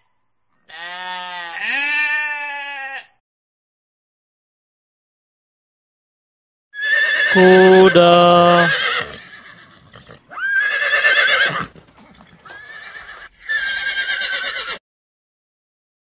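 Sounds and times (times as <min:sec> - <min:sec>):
horse whinnying: 0:06.8 - 0:14.8.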